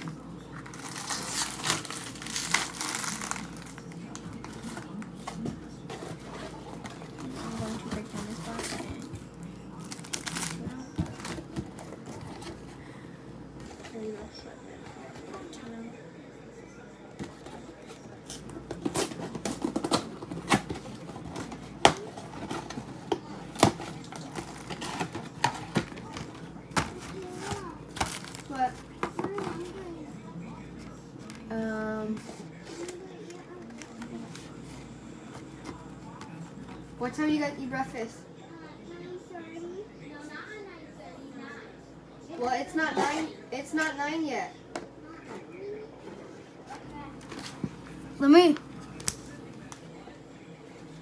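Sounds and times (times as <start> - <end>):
packaging crinkling and rustling: 0.6 - 9.2, 9.8 - 12.7, 17.3 - 29.8
cardboard crackling and knocking: 9.8 - 12.7, 18.6 - 29.7.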